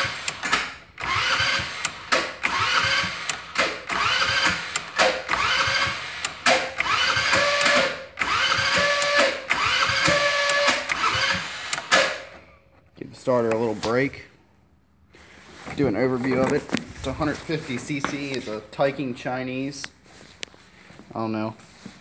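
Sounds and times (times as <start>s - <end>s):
electric starter motor cranking: 0.0s - 12.5s.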